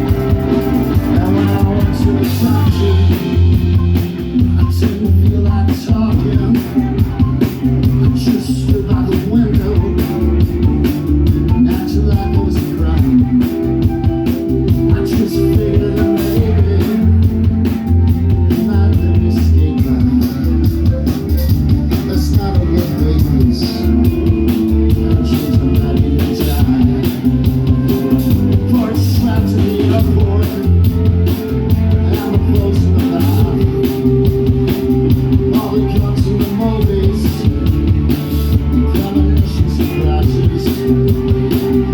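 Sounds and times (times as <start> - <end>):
rock band playing live: 0.0 - 41.9.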